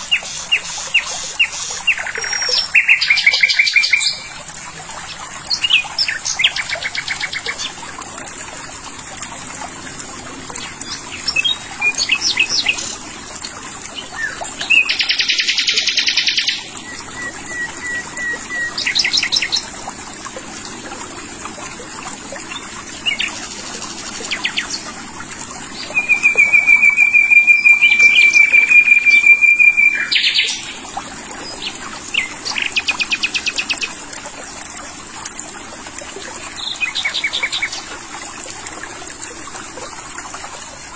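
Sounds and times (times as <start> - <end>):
songbirds trilling: 14.0 - 19.7, 25.7 - 30.9.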